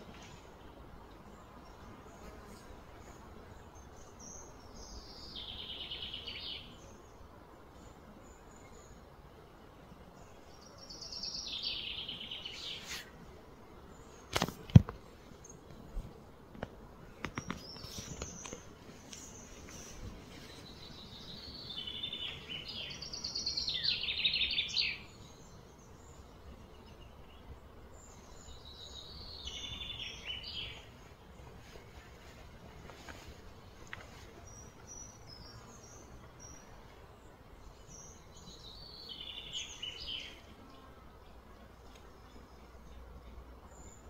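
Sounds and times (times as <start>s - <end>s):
outdoor background noise: 0.0s - 44.0s
bird singing trilled phrases: 20.7s - 27.4s.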